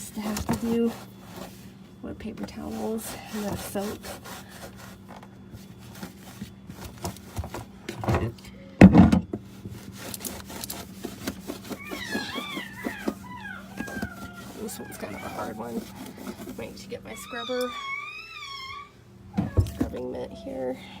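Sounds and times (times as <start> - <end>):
wiping clicks: 9.8 - 16.7
baby squealing: 11.8 - 15.5
baby crying: 11.8 - 15.6.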